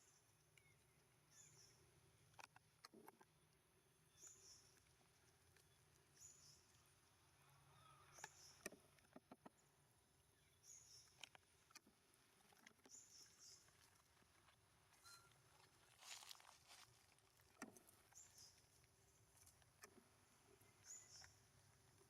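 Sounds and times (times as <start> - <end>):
faint short high chirp: 15.0 - 15.4.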